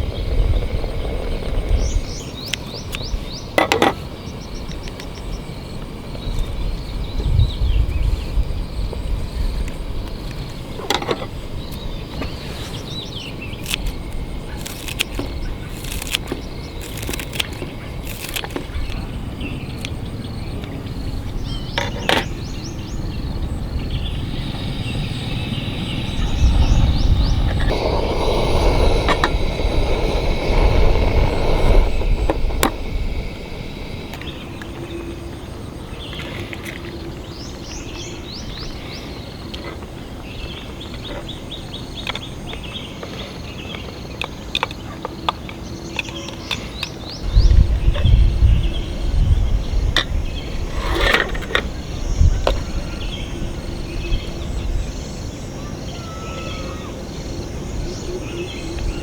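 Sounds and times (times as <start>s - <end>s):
rushing noise with low rumble: 0.0s - 2.5s, 22.7s - 36.0s
birds chirping: 0.0s - 59.0s.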